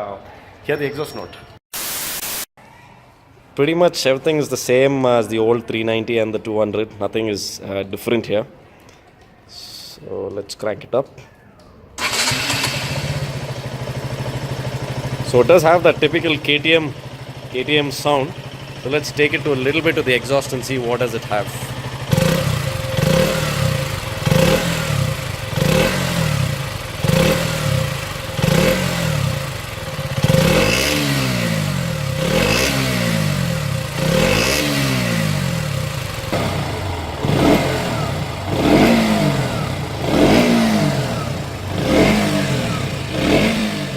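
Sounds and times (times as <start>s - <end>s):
motorcycle engine revving: 12.0s - 43.9s.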